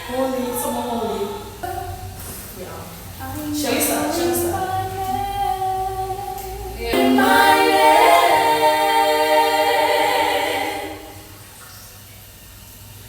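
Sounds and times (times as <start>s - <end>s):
group singing a cappella: 3.3s - 11.5s.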